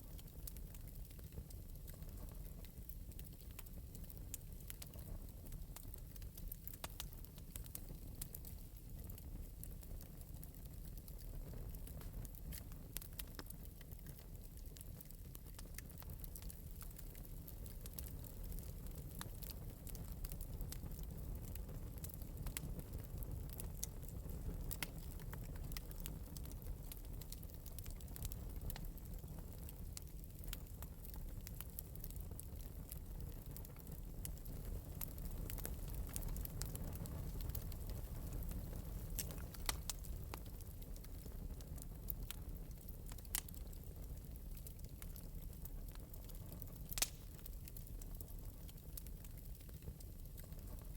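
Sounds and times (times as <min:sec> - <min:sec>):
wood fire crackling: 0:00.0 - 0:50.9
sharp pops of fire: 0:34.3 - 0:40.6, 0:46.7 - 0:47.6.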